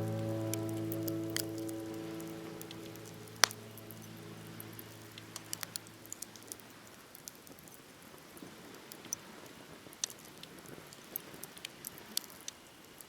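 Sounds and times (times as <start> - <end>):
soft background music: 0.0 - 6.2
campfire crackling and popping: 0.0 - 13.0.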